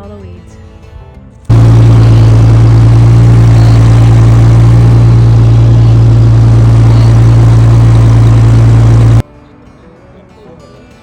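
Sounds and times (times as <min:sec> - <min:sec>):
engine running with deep hum: 0:01.5 - 0:09.2.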